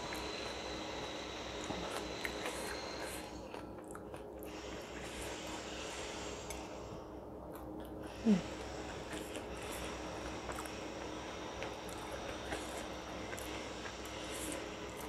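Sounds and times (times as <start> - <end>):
soft chewing: 0.0 - 15.0.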